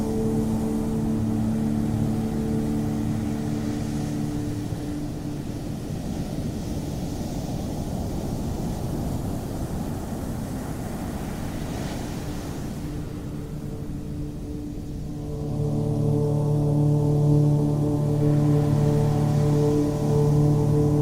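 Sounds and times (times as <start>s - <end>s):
sustained musical tones: 0.0s - 6.7s, 13.2s - 21.0s
ocean surf rumbling: 0.0s - 21.0s
wind: 0.0s - 21.0s.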